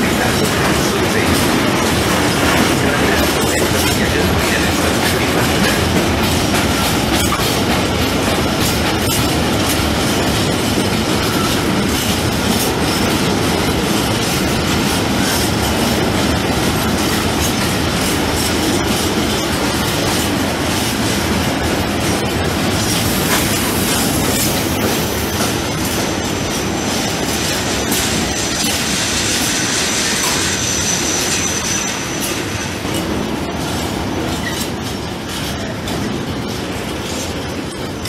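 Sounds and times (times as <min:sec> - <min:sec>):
train wheels clattering on rail: 0:00.0 - 0:38.0
high wheel squeal: 0:28.7 - 0:32.9.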